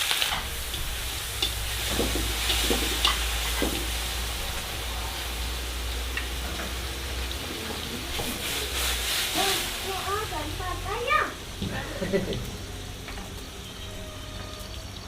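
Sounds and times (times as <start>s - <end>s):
food sizzling in a pan: 0.0s - 15.0s
steady low hum: 0.3s - 8.2s.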